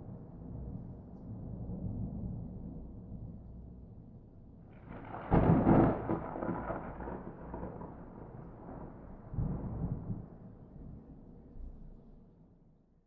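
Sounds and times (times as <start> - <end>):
thunder crack and rumble: 4.7 - 11.8.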